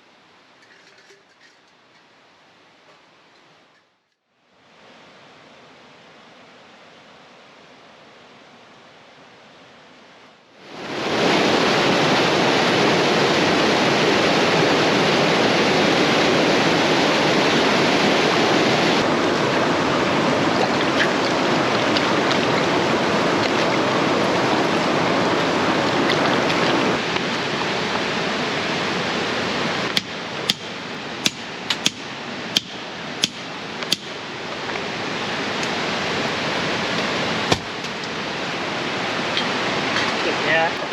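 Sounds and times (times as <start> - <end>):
river rushing: 4.5 - 40.9
campfire popping: 29.8 - 34.9.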